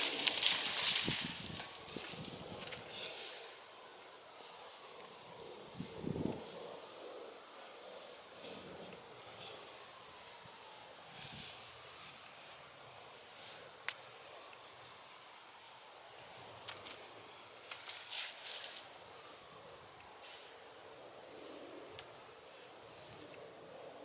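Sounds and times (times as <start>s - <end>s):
hands digging through soil: 0.0s - 3.2s
high insect drone: 0.0s - 24.0s.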